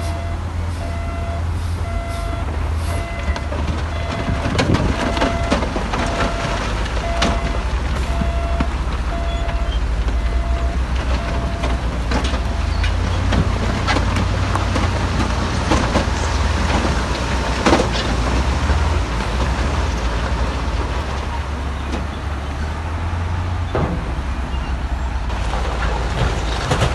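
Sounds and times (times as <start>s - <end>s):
reverse alarm beep: 0.0s - 4.4s, 5.2s - 11.7s
diesel engine running under load: 0.0s - 26.9s.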